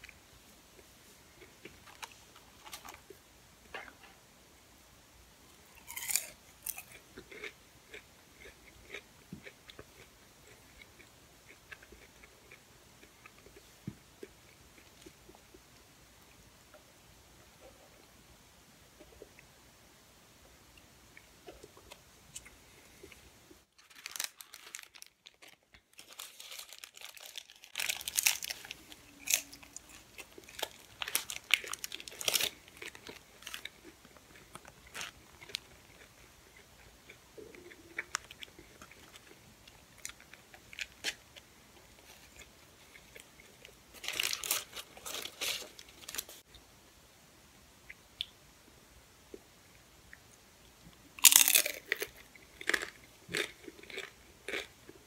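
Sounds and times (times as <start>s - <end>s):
crunching and chewing food: 0.0s - 4.1s, 5.7s - 15.8s, 21.1s - 46.4s, 50.1s - 55.0s
paper wrapper crinkling: 23.8s - 33.6s, 43.9s - 46.4s.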